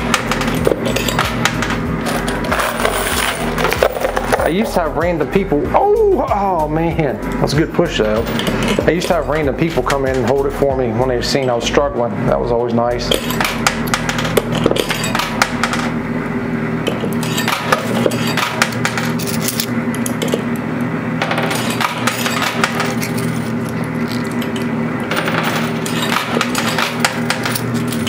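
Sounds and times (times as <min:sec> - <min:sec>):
coins clinking and clattering: 0:00.0 - 0:04.7, 0:08.2 - 0:09.4, 0:13.1 - 0:15.9, 0:17.0 - 0:20.5, 0:21.2 - 0:28.0
steady machine hum: 0:00.0 - 0:28.0.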